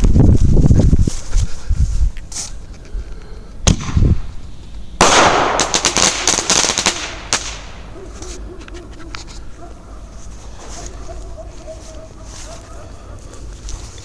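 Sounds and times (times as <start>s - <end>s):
firework crackling: 5.0s - 7.8s
firework shell bursting: 5.0s - 7.8s.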